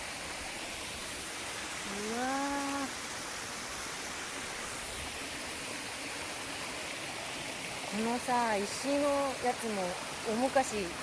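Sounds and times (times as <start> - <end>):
small waterfall rushing: 0.0 - 11.0
woman exclaiming in awe: 1.9 - 3.0.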